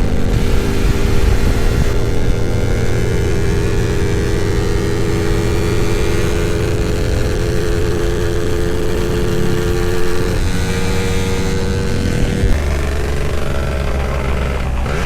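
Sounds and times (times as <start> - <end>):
two-stroke motorcycle engine: 0.0 - 15.0.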